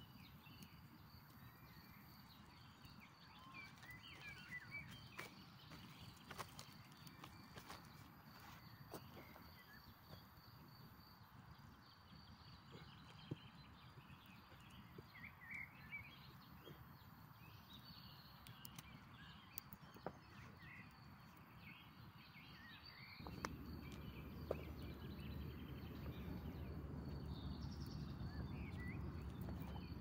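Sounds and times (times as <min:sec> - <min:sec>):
small birds chirping: 0:00.0 - 0:30.0
low rumbling noise: 0:23.1 - 0:30.0.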